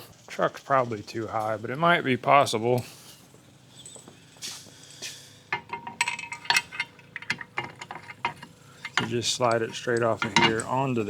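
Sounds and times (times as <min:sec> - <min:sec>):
metal tools clinking: 0:05.6 - 0:11.0.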